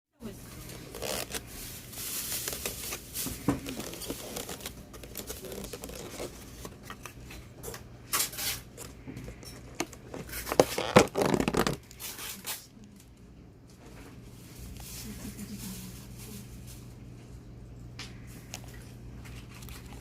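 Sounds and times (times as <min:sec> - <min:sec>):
rustling and tearing: 0:00.4 - 0:09.0, 0:09.9 - 0:12.9, 0:18.1 - 0:20.0.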